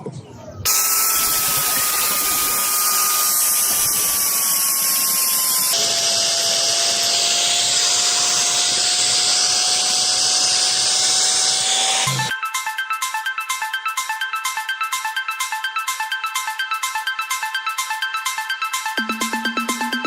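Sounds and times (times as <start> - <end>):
power tool whining on metal: 0.7 - 12.3.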